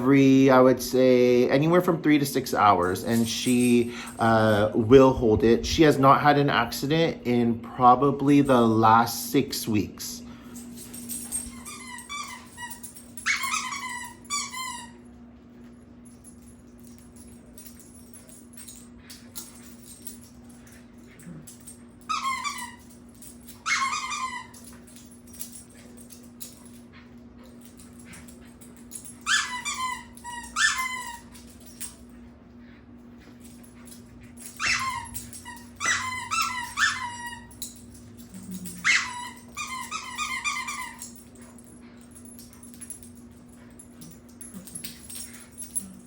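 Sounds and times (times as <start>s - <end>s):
low hum: 0.0s - 46.0s
puppy whining and yelping: 11.2s - 15.1s, 21.2s - 26.6s, 28.9s - 32.0s, 33.7s - 41.6s.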